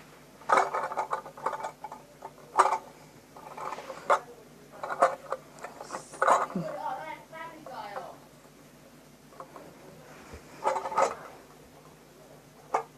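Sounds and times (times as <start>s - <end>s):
hard toys clicking and knocking: 0.4s - 6.9s, 10.6s - 12.0s, 12.6s - 12.9s.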